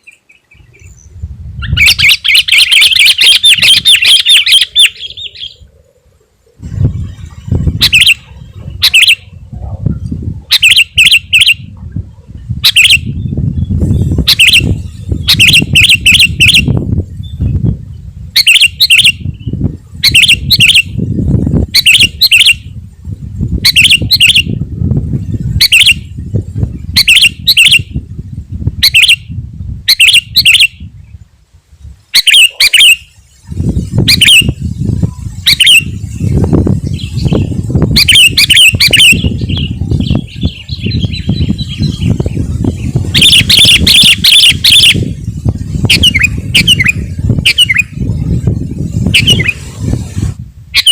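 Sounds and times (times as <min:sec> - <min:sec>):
bird singing bubbly phrases: 0:00.0 - 0:05.7, 0:12.6 - 0:21.0, 0:32.1 - 0:49.6.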